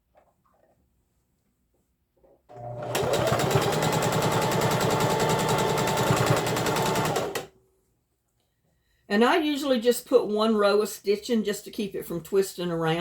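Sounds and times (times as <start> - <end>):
electric sewing machine stitching: 2.5 - 7.5.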